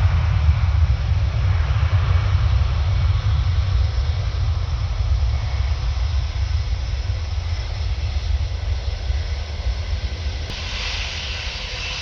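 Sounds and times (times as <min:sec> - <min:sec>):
jet engines rumbling: 0:00.0 - 0:12.0
jet engine hiss: 0:05.3 - 0:12.0.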